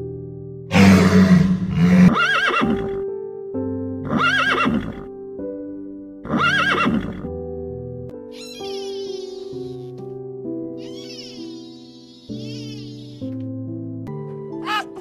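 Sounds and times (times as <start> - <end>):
background music sustained notes: 0.0 - 15.0
walrus bellowing: 0.7 - 2.8
horse whinnying: 0.7 - 3.0, 4.0 - 5.1, 6.2 - 7.3, 8.4 - 10.0.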